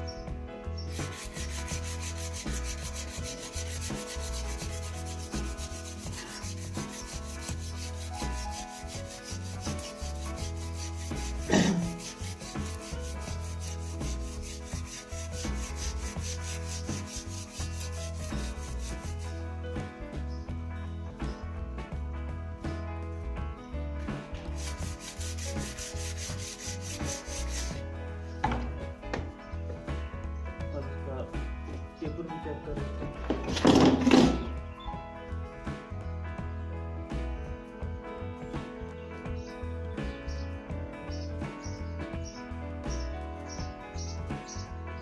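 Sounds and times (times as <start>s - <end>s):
hand sanding wood: 0.9s - 19.4s, 24.5s - 27.8s.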